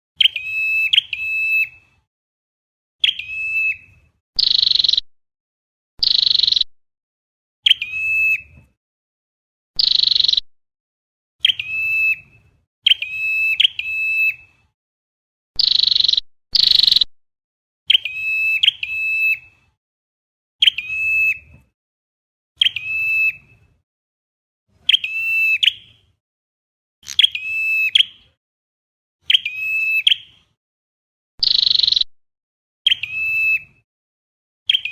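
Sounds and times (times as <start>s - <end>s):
high ringing bird calls: 0.2s - 1.8s, 3.0s - 5.0s, 6.0s - 6.7s, 7.6s - 8.4s, 9.8s - 10.4s, 11.4s - 14.4s, 15.6s - 17.1s, 17.9s - 19.4s, 22.6s - 23.5s, 24.9s - 25.9s, 27.0s - 28.4s, 31.4s - 32.1s, 32.9s - 33.8s.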